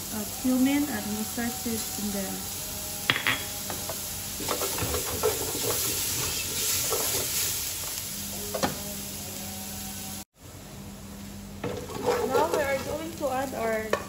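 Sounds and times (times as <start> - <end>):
food sizzling in a pot: 0.0 - 14.0
wooden spoon scraping a pot: 3.1 - 7.6, 11.6 - 13.1.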